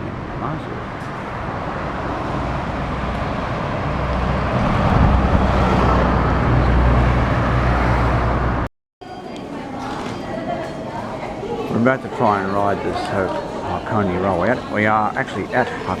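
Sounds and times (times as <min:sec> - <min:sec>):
bus engine hum: 0:00.0 - 0:08.7.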